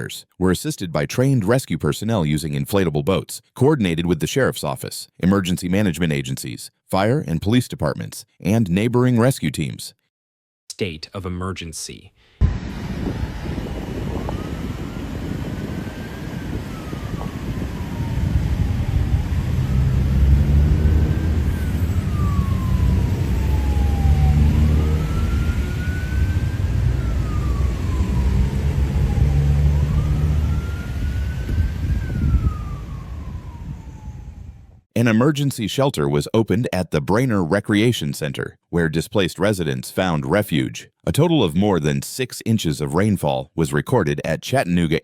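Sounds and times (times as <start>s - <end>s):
heavy low rumble: 12.4s - 34.7s
emergency siren wailing: 12.4s - 34.8s.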